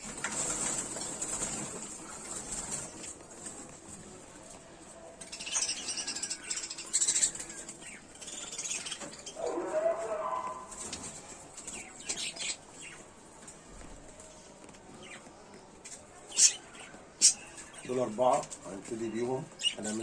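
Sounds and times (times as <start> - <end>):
wings fluttering: 0.0 - 4.1.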